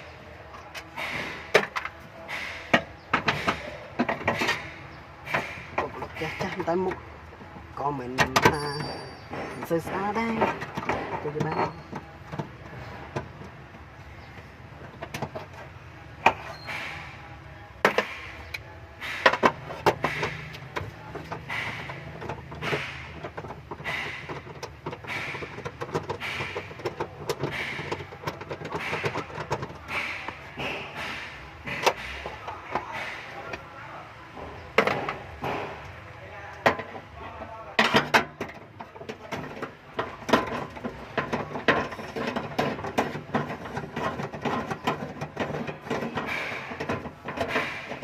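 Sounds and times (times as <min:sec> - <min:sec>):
hand tools clanking on metal: 0:00.0 - 0:33.7, 0:34.4 - 0:48.0.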